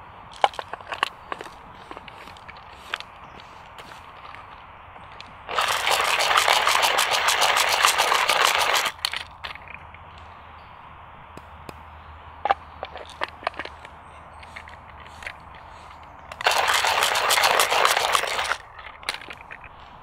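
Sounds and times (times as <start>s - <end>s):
coffee grinder crunching beans: 5.5s - 9.3s, 14.4s - 19.6s.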